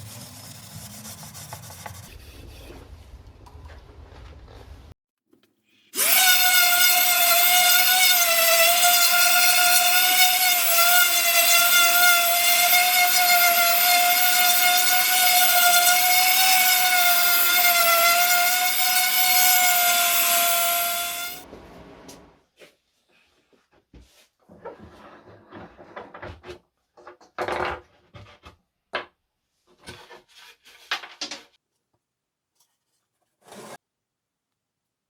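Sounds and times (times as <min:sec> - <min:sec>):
power tool motor whine: 0:06.0 - 0:21.4.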